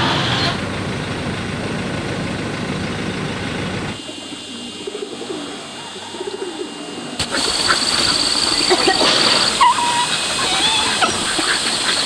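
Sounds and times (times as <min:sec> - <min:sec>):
outdoor hiss: 0:07.1 - 0:12.0.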